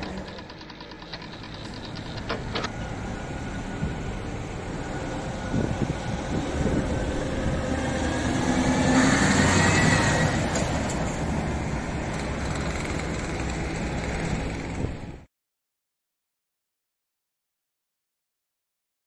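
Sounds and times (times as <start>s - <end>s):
diesel truck engine running: 0.0s - 15.2s.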